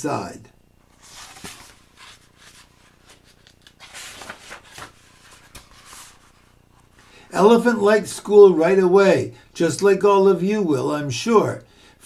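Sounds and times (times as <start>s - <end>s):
book pages rustling and turning: 0.8s - 7.1s.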